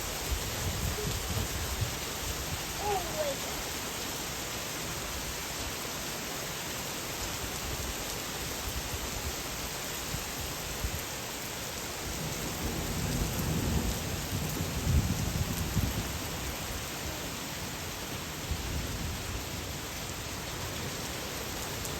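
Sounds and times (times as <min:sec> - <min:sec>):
rain hiss: 0:00.0 - 0:21.9
thunder rumbling: 0:12.2 - 0:16.4.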